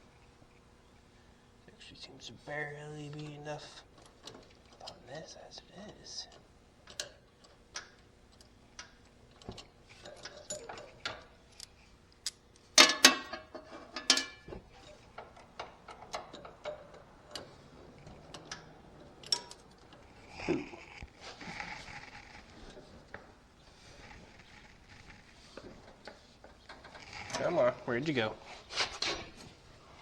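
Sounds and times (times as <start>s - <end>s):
hand tools clicking on metal: 6.1s - 17.6s.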